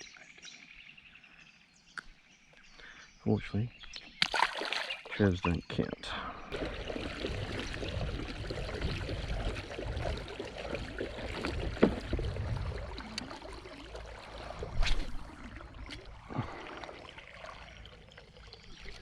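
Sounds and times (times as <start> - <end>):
water sloshing around kayak: 6.5 - 19.0.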